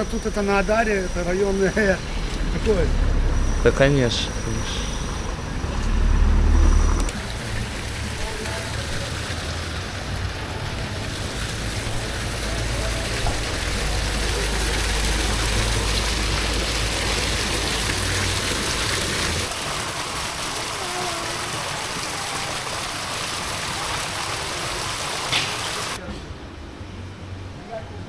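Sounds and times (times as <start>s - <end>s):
low rumble: 0.6s - 8.2s.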